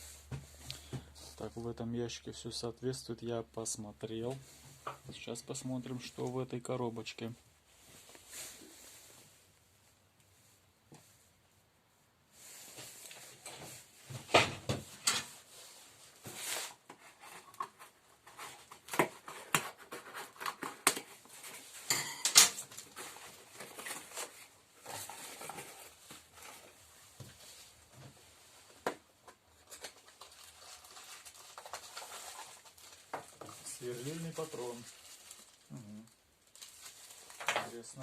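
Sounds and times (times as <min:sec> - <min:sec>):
box opening and parts rustling: 0:16.3 - 0:26.8.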